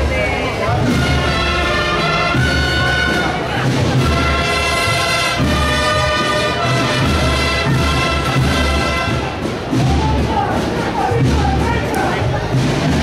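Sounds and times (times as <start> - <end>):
brass chords: 0.0 - 9.8
bass drum beat: 0.0 - 13.0.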